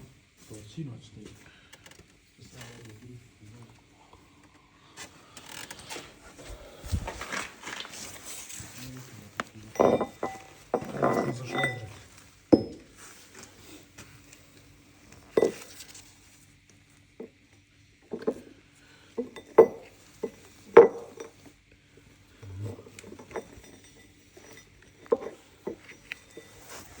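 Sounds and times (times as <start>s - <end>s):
faint steady hum: 0.0s - 27.0s
metal parts clinking together: 9.7s - 12.0s, 15.3s - 15.8s, 19.2s - 21.4s, 22.9s - 27.0s.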